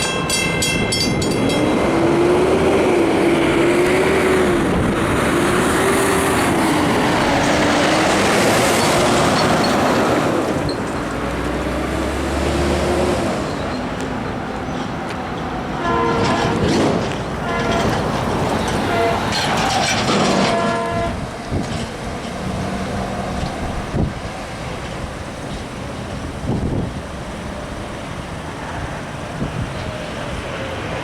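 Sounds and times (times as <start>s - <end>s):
train passing on rails: 0.0s - 31.0s
train horn: 15.8s - 21.4s.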